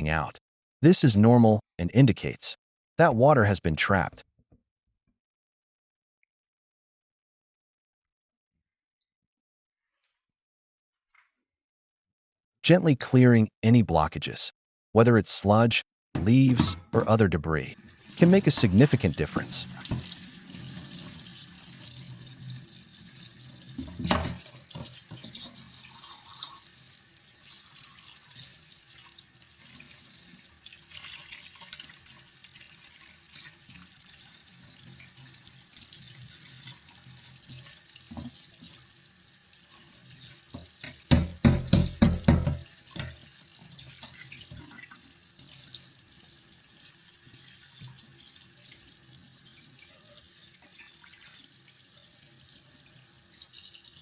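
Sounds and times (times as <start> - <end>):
water running and trickling: 17.8 - 54.0.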